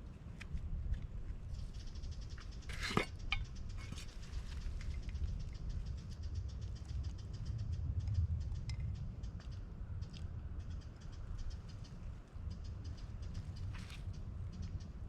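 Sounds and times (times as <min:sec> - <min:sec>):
low wind rumble: 0:00.0 - 0:15.0
bottle scrape: 0:02.7 - 0:03.2.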